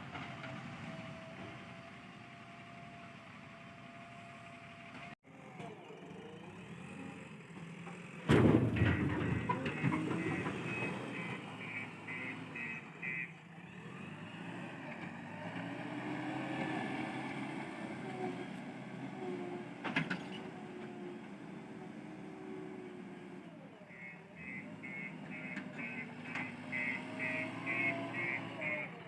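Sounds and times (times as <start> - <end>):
backhoe diesel engine running: 0.0 - 29.0
mud crashing into truck body: 8.2 - 10.2.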